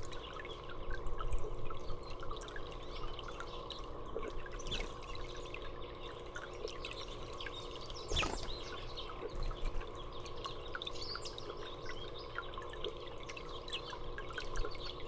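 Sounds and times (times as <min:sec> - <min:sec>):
trickling water: 0:00.0 - 0:15.0
small birds chirping: 0:04.4 - 0:06.2, 0:06.8 - 0:12.6.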